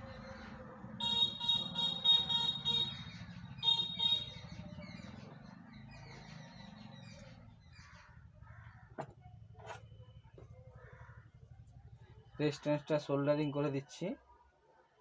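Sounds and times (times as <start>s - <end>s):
horn-like beeping pulses: 1.0s - 4.4s.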